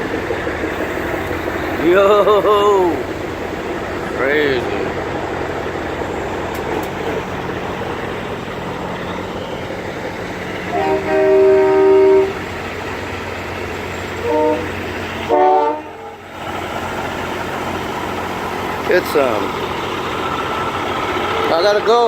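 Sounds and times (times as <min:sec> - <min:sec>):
diesel engines rumbling: 0:00.0 - 0:22.0
truck air horn blasts: 0:10.7 - 0:12.4, 0:14.2 - 0:16.2.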